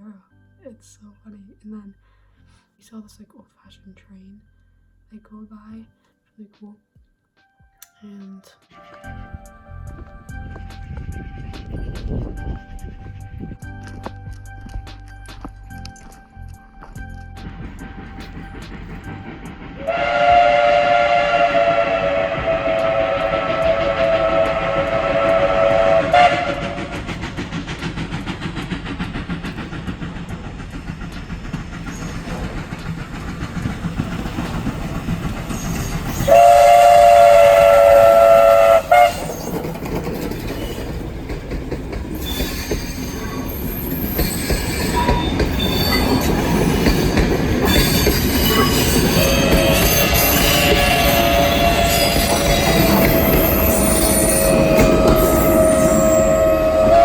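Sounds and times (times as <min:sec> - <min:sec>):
train wheels clacking: 0:09.0 - 0:14.0, 0:16.9 - 0:57.0
train horn blasts: 0:19.6 - 0:27.1, 0:35.7 - 0:39.6, 0:44.8 - 0:57.0
wheel squeal: 0:22.4 - 0:41.1, 0:42.1 - 0:57.0.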